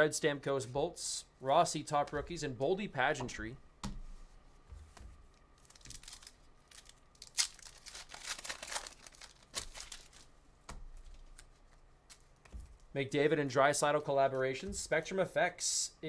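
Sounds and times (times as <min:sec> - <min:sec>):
wrappers tearing and crinkling: 0:05.6 - 0:12.9.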